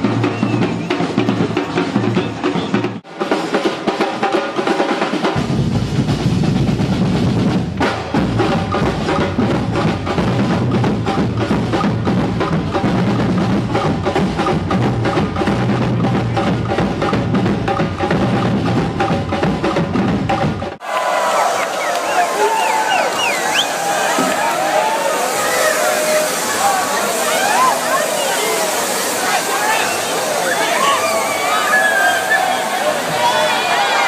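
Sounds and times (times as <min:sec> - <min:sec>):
rapid snare drum beats: 0:00.0 - 0:20.8
bass drum: 0:05.4 - 0:20.8.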